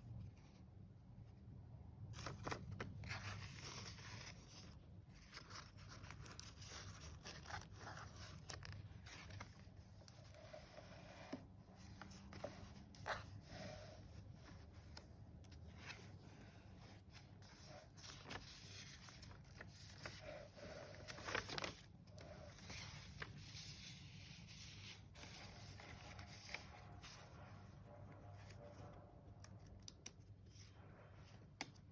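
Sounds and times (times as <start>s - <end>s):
paper pages turning: 2.1s - 27.6s.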